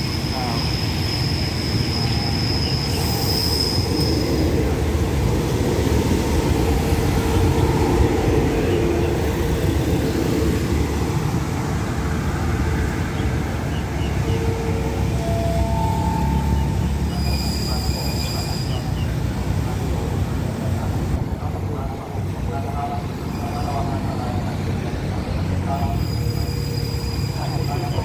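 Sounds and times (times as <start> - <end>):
train wheels squealing: 0.0 - 4.6, 13.8 - 19.2, 25.2 - 28.0
passenger train passing: 0.0 - 28.0.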